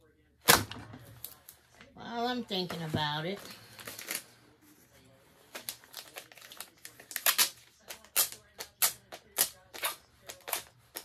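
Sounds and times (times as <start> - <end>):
plastic film crinkling: 2.3 - 11.0.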